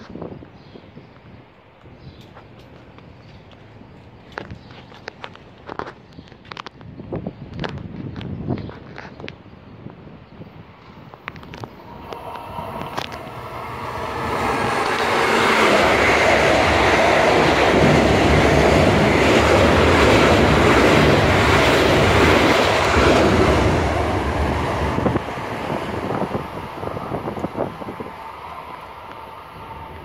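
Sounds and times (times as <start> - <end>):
electric train passing: 10.7 - 30.0.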